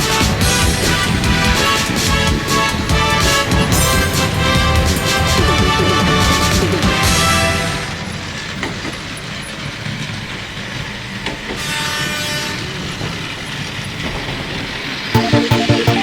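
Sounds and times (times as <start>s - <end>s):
music with a beat: 15.2s - 16.0s.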